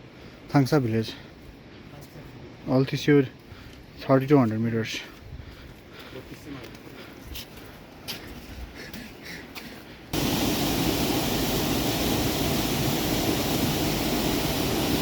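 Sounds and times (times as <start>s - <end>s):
loud rushing water: 10.2s - 15.0s.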